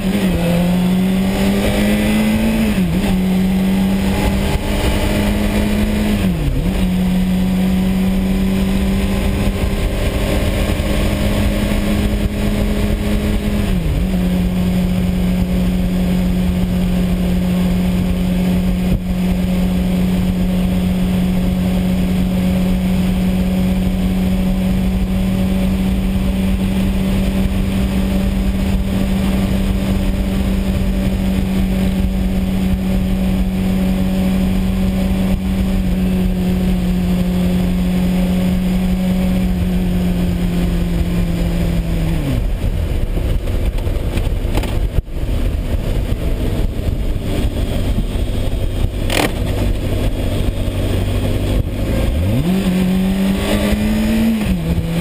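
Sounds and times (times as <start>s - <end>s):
motorcycle engine cruising: 0.0s - 55.0s
wind rushing on microphone: 0.0s - 55.0s.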